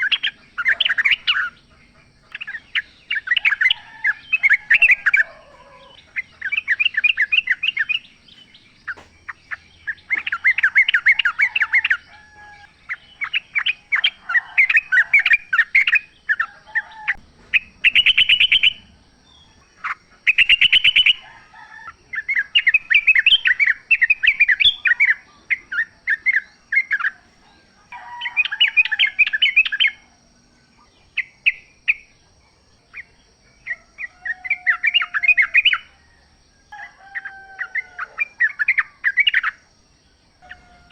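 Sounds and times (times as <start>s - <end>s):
bird singing chattering notes: 0.0s - 21.2s.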